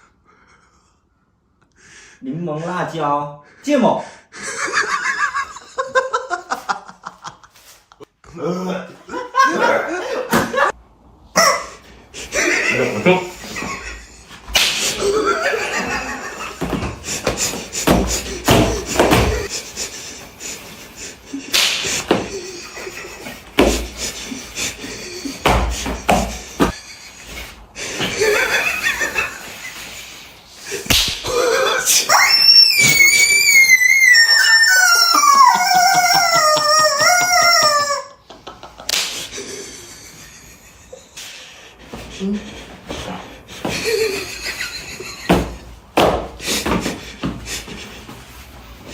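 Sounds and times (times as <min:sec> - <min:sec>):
heavy thumps and slaps: 0:16.5 - 0:19.5, 0:21.5 - 0:22.4, 0:23.4 - 0:24.1, 0:25.2 - 0:26.8, 0:30.9 - 0:31.3, 0:45.3 - 0:47.5
high-pitched wailing cry: 0:31.3 - 0:38.2.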